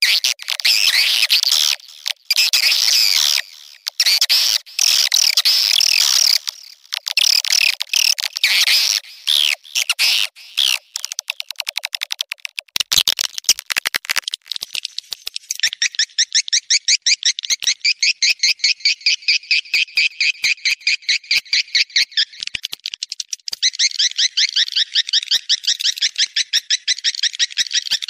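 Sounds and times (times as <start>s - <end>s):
swiftlet clicks: 4.8s - 15.8s.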